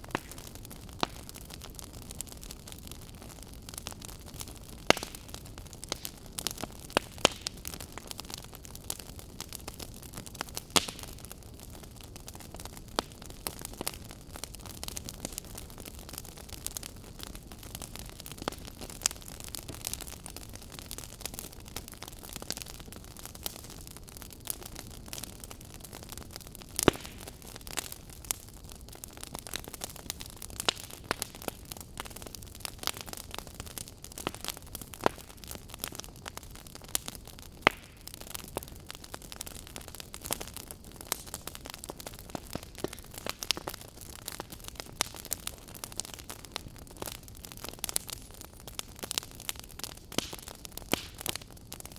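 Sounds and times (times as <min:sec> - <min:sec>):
wood fire crackling and popping: 0:00.0 - 0:51.9.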